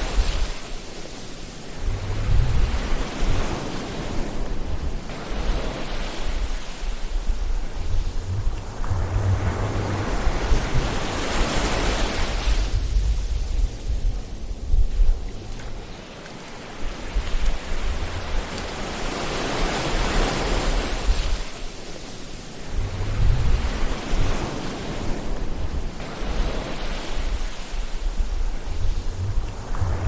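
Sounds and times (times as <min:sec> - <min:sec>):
ocean surf washing: 0:00.0 - 0:30.0
low rumble: 0:01.8 - 0:03.4, 0:06.9 - 0:11.8, 0:22.6 - 0:24.0, 0:27.4 - 0:30.0.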